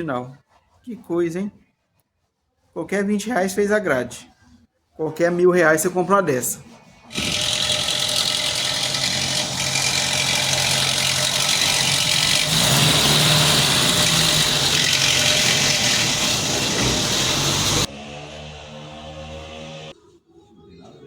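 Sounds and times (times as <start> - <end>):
hissing rattly timing chain noise: 7.1 - 17.9
car engine idling: 8.1 - 17.9.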